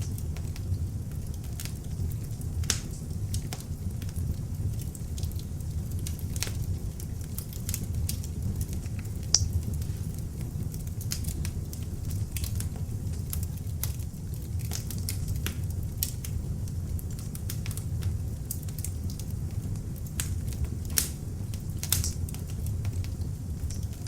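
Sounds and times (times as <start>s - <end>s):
log fire crackling: 0.0s - 24.0s.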